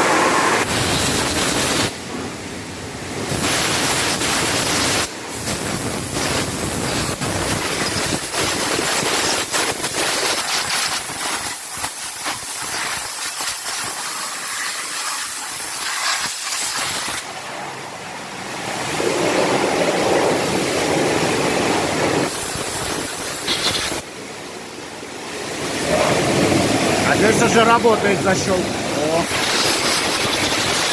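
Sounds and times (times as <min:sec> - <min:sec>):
pressure spray hissing: 0:03.3 - 0:17.2, 0:22.3 - 0:24.0, 0:26.1 - 0:30.9.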